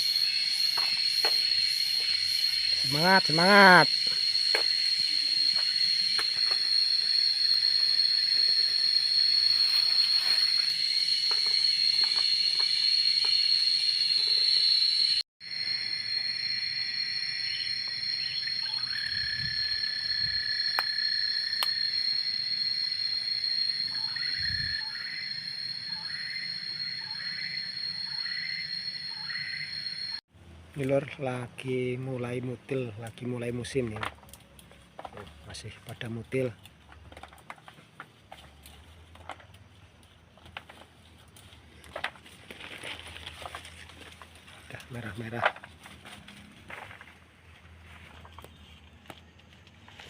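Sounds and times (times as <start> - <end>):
insects droning: 0.0 - 30.2, 30.9 - 50.0.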